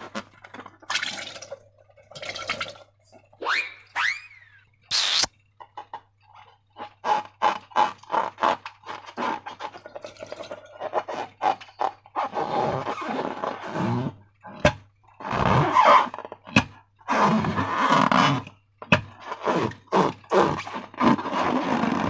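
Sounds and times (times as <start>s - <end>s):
air forced out of slime: 4.9s - 5.3s.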